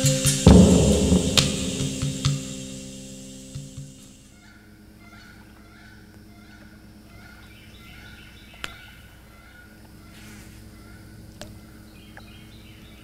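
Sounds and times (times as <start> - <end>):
steady low hum: 0.4 - 3.8.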